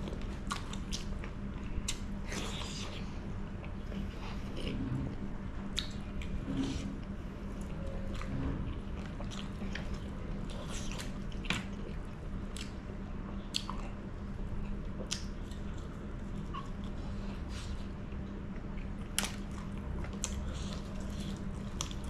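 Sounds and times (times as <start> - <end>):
low hum: 0.0 - 22.0
person chewing food: 5.6 - 22.0.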